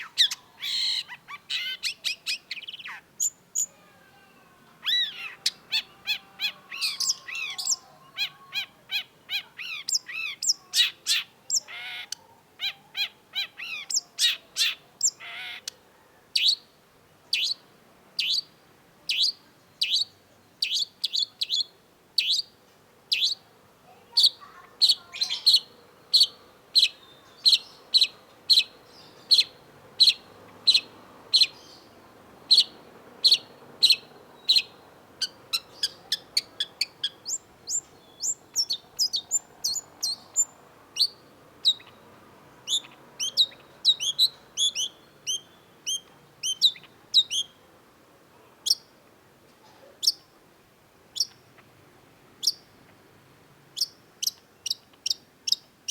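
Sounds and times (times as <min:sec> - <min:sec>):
bird singing sharp chirps: 0:04.8 - 0:11.7, 0:24.2 - 0:42.0.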